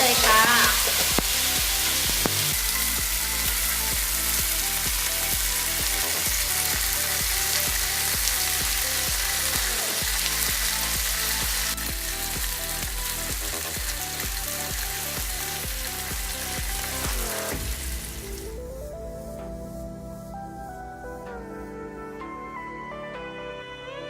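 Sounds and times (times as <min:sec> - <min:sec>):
food sizzling in a pan: 0:00.0 - 0:18.6
background music with a beat: 0:00.0 - 0:24.0.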